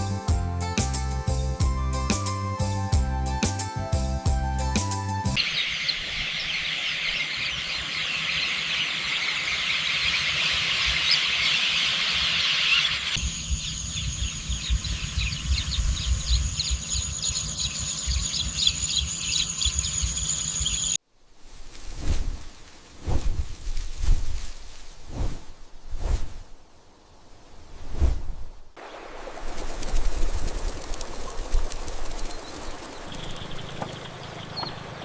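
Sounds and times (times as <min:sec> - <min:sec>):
birds chirping: 0:05.4 - 0:21.0, 0:28.8 - 0:35.0.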